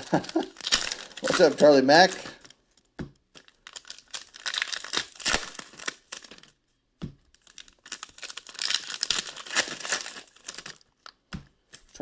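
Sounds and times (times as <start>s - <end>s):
foil wrappers tearing and crinkling: 0.0s - 2.6s, 3.3s - 6.5s, 7.3s - 11.0s.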